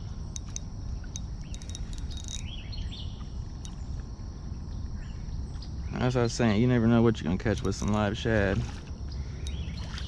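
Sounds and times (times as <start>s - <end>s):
birds chirping: 0.0s - 8.1s, 9.0s - 10.0s
steady low rumble: 0.0s - 10.0s
sharp ticks: 0.3s - 2.6s.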